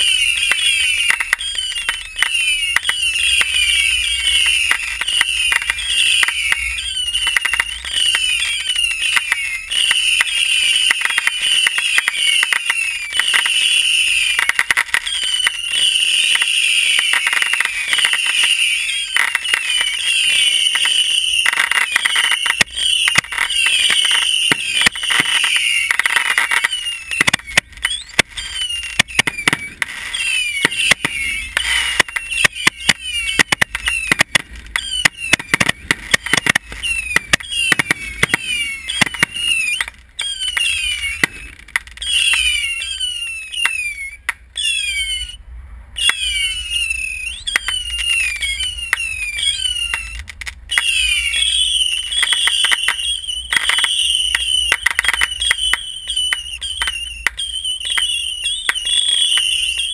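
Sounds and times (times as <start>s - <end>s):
firework crackling pops: 0.0s - 44.5s, 46.0s - 59.9s
firework whistles: 0.0s - 59.9s
low rumble of bursts: 26.7s - 52.2s.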